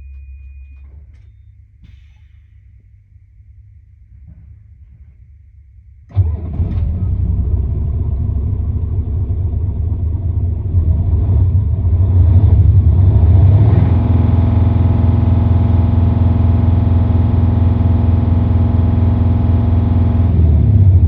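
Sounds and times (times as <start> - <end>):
diesel engine starting and idling: 6.0 - 21.0.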